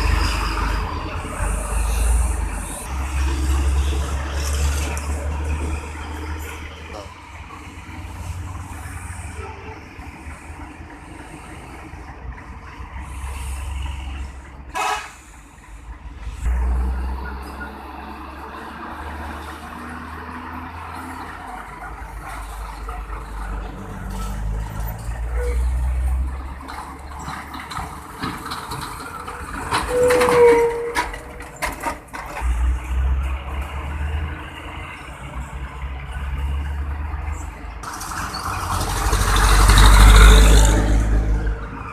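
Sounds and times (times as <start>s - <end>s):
heavy trucks rumbling: 0.0s - 41.9s
rattles and clicks: 26.6s - 32.6s.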